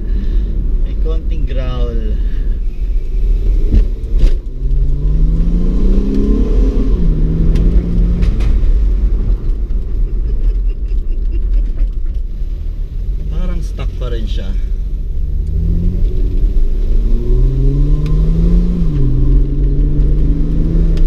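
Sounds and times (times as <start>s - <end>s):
car engine accelerating: 0.0s - 21.0s
low rumble: 0.0s - 21.0s.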